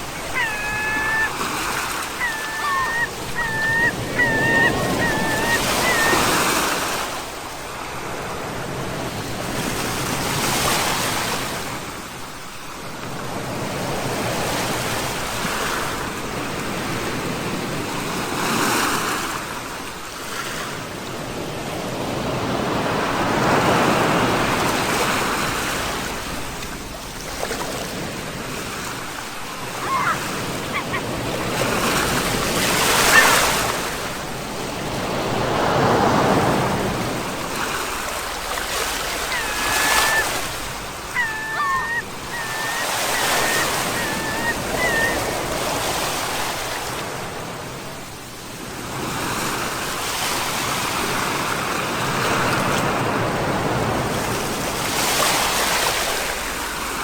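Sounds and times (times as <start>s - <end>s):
brief high calls: 0.0s - 6.7s, 29.6s - 33.6s, 38.9s - 45.6s
sea surf washing in: 0.0s - 11.8s, 27.5s - 47.8s.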